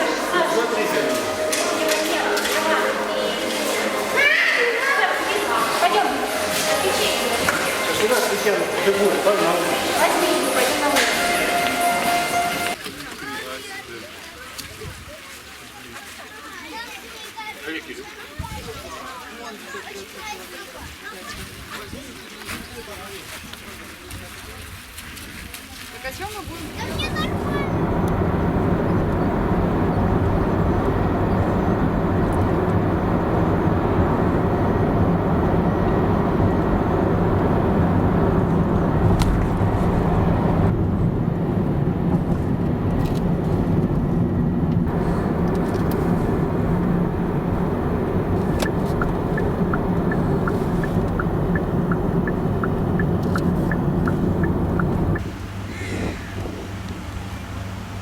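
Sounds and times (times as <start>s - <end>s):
car engine and road noise: 26.6s - 55.6s
faint regular ticking: 44.9s - 55.2s.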